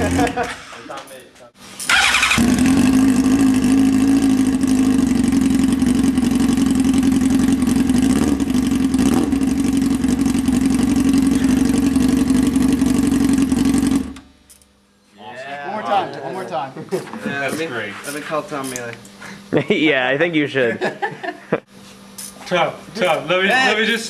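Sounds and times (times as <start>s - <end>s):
engine running steadily: 1.9s - 14.6s.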